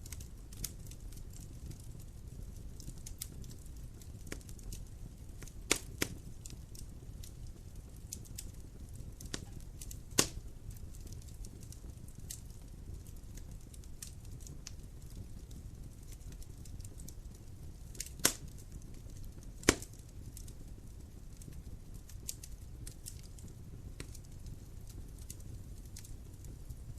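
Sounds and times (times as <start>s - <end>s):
fire pops: 0.0s - 26.9s
wood fire crackling: 0.0s - 26.9s.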